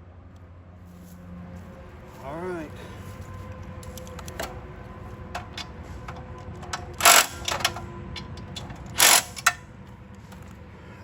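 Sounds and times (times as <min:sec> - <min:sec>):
hand tools clicking and tapping: 0:03.8 - 0:04.6, 0:05.2 - 0:09.6
loud metallic clatter: 0:05.4 - 0:09.6.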